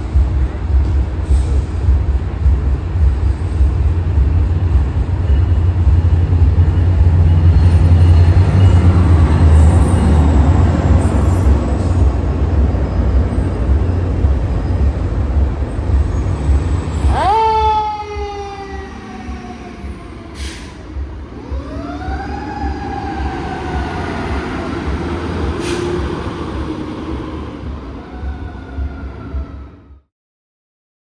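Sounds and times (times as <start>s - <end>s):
heavy engine rumble: 0.0s - 29.5s
siren winding up and down: 16.8s - 20.3s
air brake hisses: 20.4s - 21.0s, 25.6s - 26.3s.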